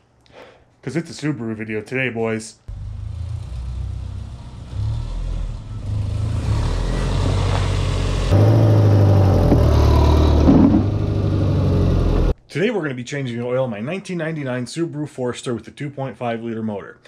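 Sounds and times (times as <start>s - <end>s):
car engine running: 7.1s - 12.3s.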